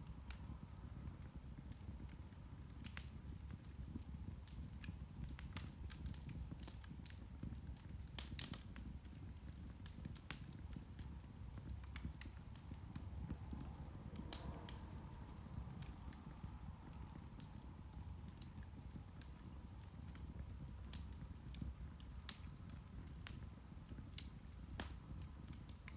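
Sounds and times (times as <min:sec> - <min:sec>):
low steady rumble: 0:00.0 - 0:25.9
peat fire crackling: 0:00.0 - 0:25.9.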